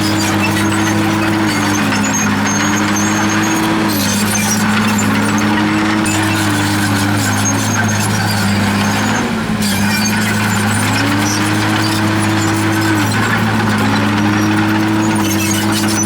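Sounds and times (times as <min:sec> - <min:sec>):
bulldozer diesel engine under load: 0:00.0 - 0:16.0
steel tracks squeaking and clinking: 0:00.0 - 0:16.0.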